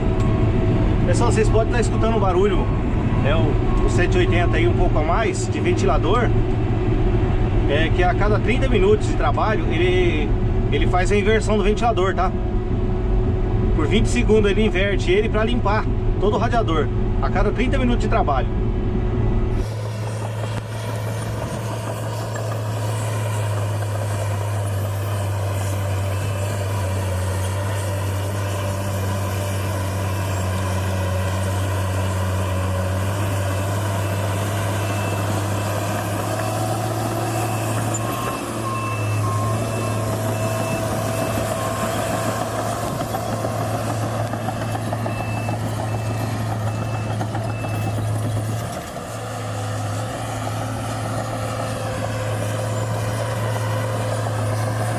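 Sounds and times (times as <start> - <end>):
diesel engine running under load: 0.0 - 54.9
reversing alarm beeping: 0.1 - 5.4, 33.7 - 48.6.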